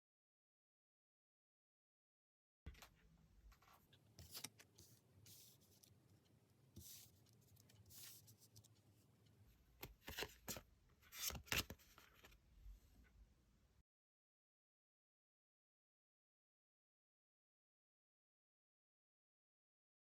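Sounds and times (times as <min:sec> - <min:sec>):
cards rustling and clicking: 0:02.7 - 0:06.0, 0:09.8 - 0:12.4.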